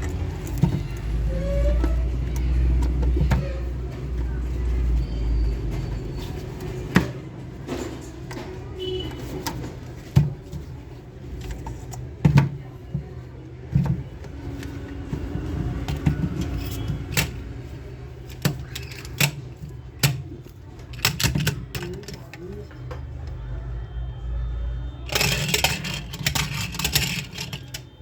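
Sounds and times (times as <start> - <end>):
plastic toy pieces clicking: 18.3 - 22.4, 25.1 - 27.9.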